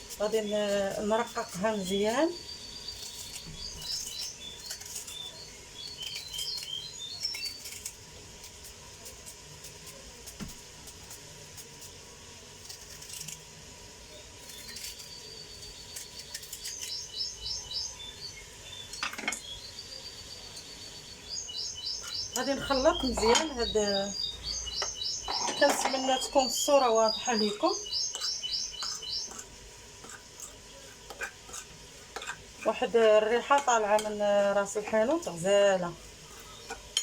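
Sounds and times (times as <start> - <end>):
small birds twittering: 0.1 - 7.8, 14.1 - 30.9, 36.3 - 37.0.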